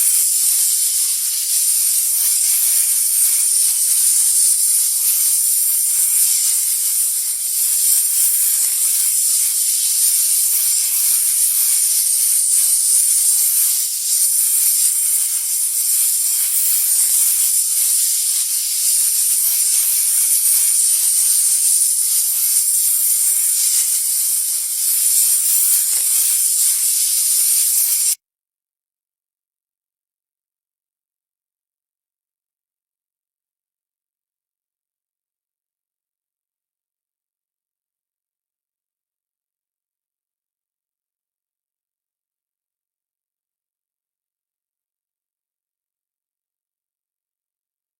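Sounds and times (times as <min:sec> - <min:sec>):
snake hissing: 0:00.0 - 0:28.2.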